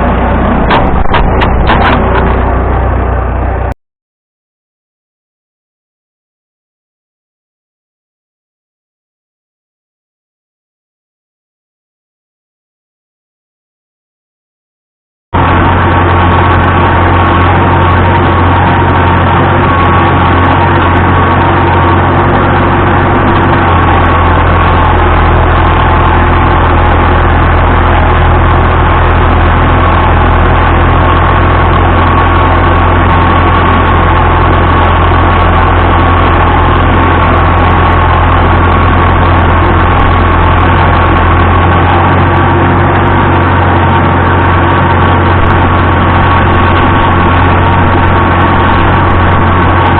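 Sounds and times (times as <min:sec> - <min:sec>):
tractor engine running: 0:00.0 - 0:03.8, 0:15.4 - 0:49.9.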